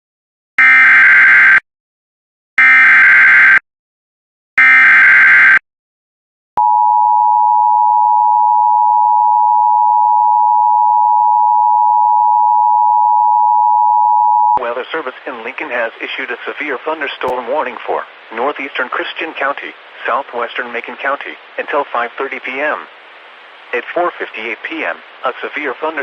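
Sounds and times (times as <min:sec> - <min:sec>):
two-tone alarm: 0:00.6 - 0:01.6, 0:02.6 - 0:03.6, 0:04.6 - 0:05.6, 0:06.6 - 0:14.6.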